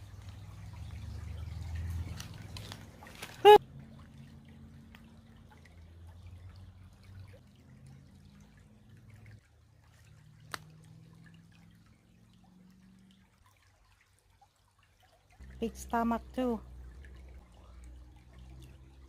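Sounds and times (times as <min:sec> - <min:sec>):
creek water trickling: 0:00.0 - 0:19.0
low steady hum: 0:00.0 - 0:19.0
water drips: 0:00.0 - 0:19.0.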